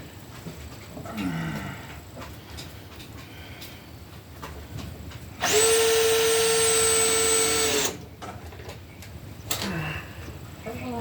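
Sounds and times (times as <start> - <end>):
electric drill motor running: 5.4 - 8.0.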